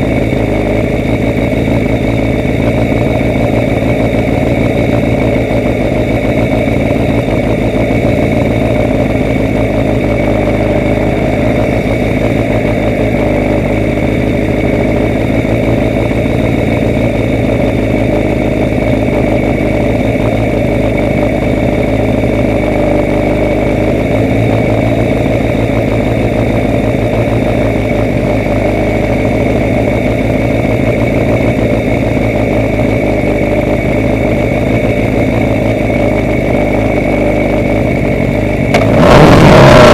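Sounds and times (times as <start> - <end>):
vehicle engine running steadily: 0.0 - 39.9.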